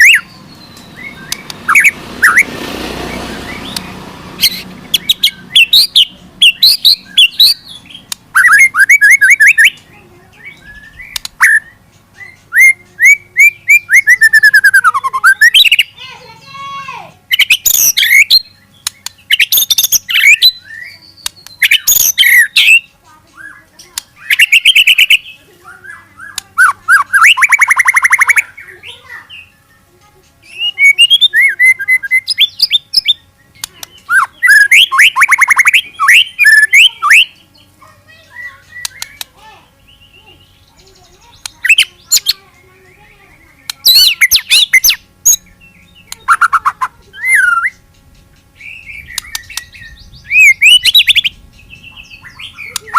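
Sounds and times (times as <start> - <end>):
bird singing whistles and trills: 0.0 - 2.6, 3.3 - 16.0, 17.3 - 52.9.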